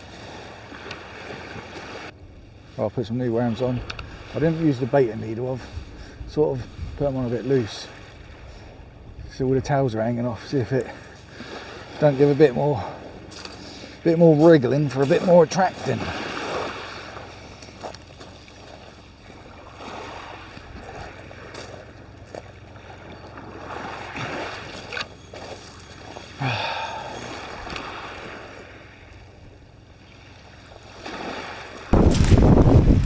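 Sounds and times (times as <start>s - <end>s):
sea surf: 0.0s - 33.0s
wind on microphone: 3.5s - 10.2s, 31.9s - 33.0s.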